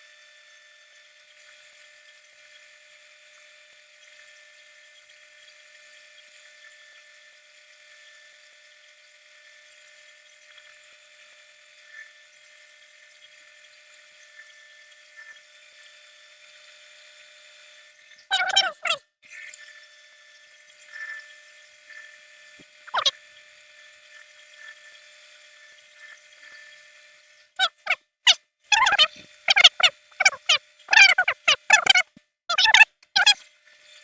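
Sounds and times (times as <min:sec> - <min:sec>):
small electric machine whining: 0:19.8 - 0:28.0.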